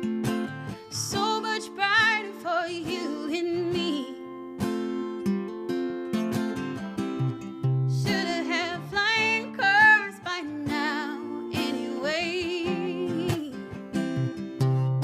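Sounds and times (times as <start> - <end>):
strummed acoustic guitar: 0.0 - 15.0
woman singing with vibrato: 0.9 - 4.3, 7.9 - 13.8.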